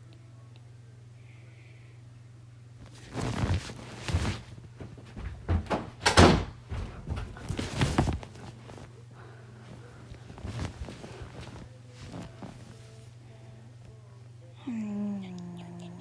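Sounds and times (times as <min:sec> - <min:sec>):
steady low hum: 0:00.0 - 0:16.0
clattering knocks and thumps: 0:02.9 - 0:08.9.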